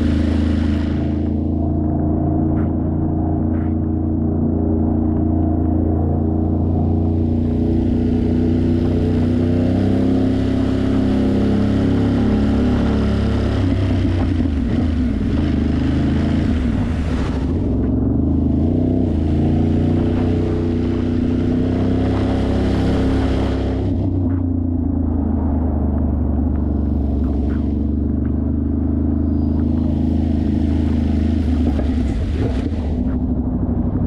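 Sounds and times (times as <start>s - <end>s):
wind and road noise hiss: 0.0s - 1.8s
motorcycle engine running: 0.0s - 34.0s.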